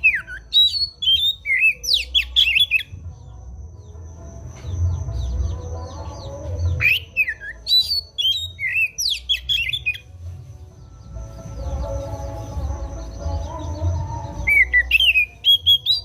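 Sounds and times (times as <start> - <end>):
bird song with whistles: 0.0 - 3.1, 6.2 - 10.1, 11.5 - 16.0
low rumble: 2.9 - 6.8.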